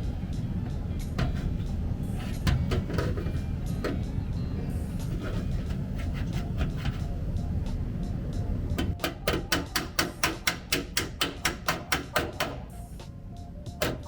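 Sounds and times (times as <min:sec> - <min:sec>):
background music: 0:00.0 - 0:14.0
hammer striking metal panel: 0:01.2 - 0:01.6, 0:02.3 - 0:04.0, 0:08.8 - 0:12.7, 0:13.8 - 0:14.0.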